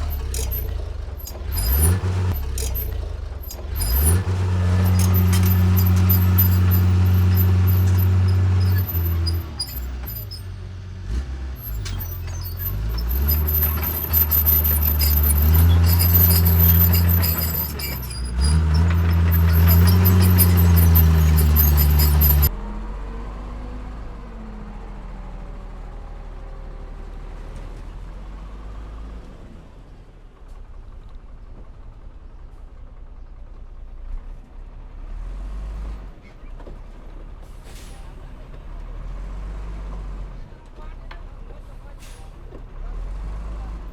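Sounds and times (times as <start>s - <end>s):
heavy diesel engine working: 0.0s - 22.5s, 37.4s - 43.9s.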